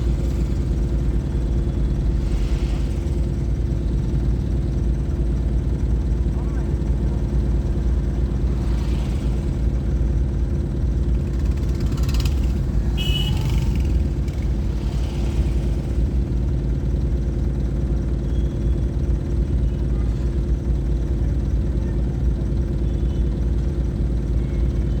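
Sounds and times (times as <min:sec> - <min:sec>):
vehicle engine droning: 0:00.0 - 0:25.0.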